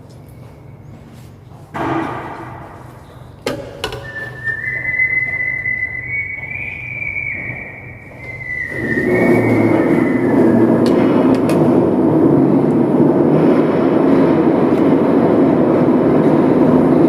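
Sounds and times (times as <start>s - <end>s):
steady high whistle: 3.9s - 11.3s.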